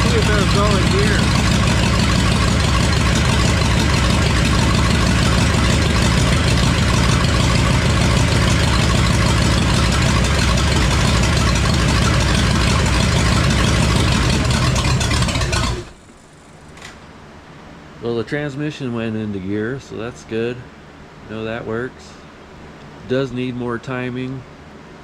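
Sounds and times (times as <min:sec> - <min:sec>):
truck engine idling: 0:00.0 - 0:16.8.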